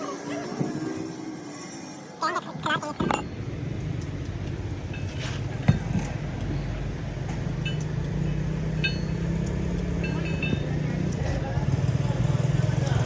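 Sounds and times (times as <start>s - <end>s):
engine running steadily: 2.4s - 13.0s
light metallic clinks: 7.3s - 11.3s.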